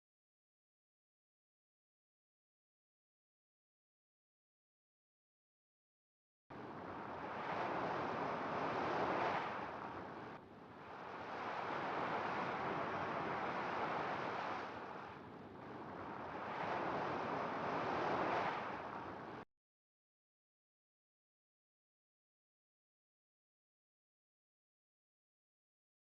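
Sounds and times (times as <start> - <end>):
ocean waves washing in: 6.5 - 19.5.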